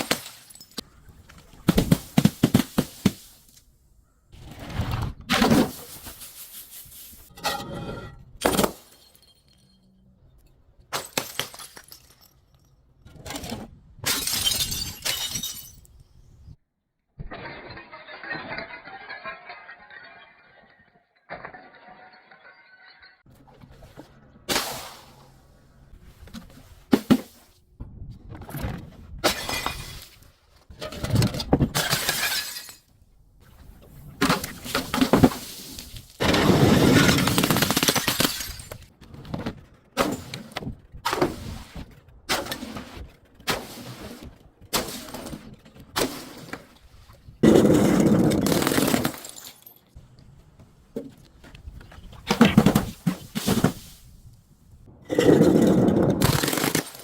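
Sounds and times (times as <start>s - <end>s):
glass bottles breaking and crunching: 0.0s - 0.9s, 7.3s - 10.1s, 10.9s - 12.9s, 14.0s - 16.1s, 17.3s - 23.3s, 29.2s - 30.2s, 31.7s - 32.9s, 34.3s - 38.9s, 47.4s - 50.0s, 55.1s - 57.0s.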